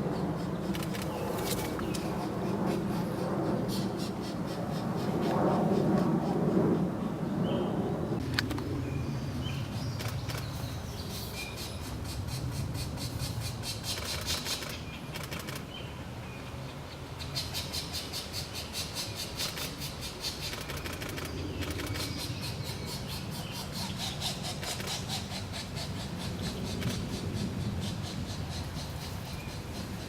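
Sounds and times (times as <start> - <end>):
woodpecker nestlings begging: 0.0 - 6.4, 17.2 - 30.0
rapid rattling pulses: 19.3 - 30.0.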